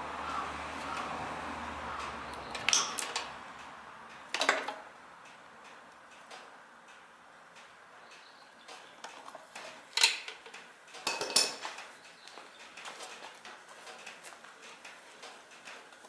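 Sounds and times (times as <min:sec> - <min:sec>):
small metal tools clinking: 0:09.6 - 0:11.9.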